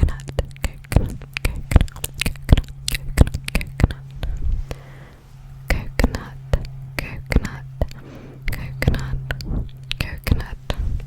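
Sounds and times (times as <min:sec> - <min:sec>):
low steady hum: 0:00.0 - 0:11.0
wet mouth clicks and pops: 0:00.2 - 0:04.0.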